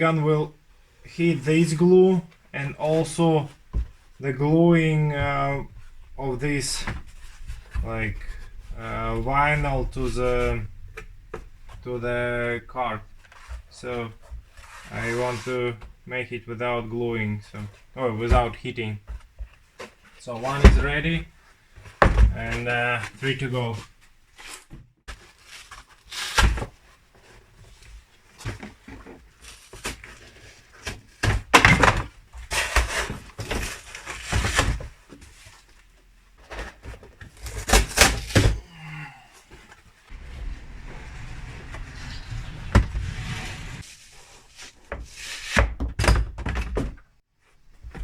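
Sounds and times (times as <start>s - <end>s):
rubbing: 1.5s - 16.0s, 40.1s - 45.6s.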